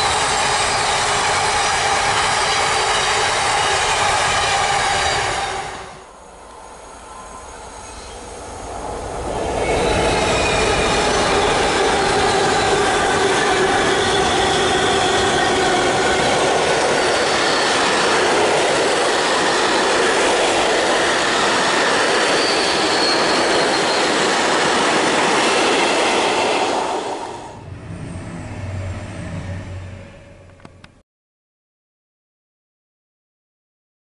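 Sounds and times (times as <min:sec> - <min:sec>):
train wheels rushing on rail: 0:00.0 - 0:31.0
low hum: 0:27.6 - 0:31.0.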